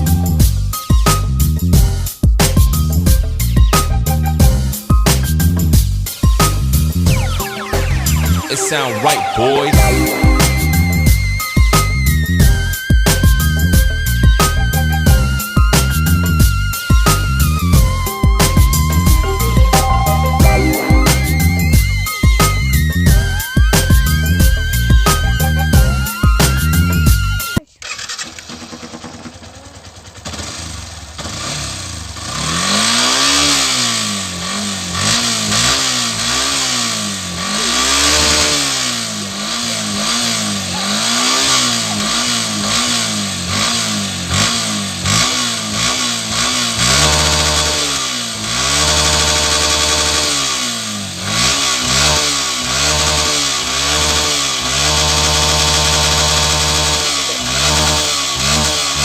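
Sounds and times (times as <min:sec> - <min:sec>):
motorcycle engine revving and idling: 0:11.0 - 0:19.9, 0:21.6 - 0:59.0.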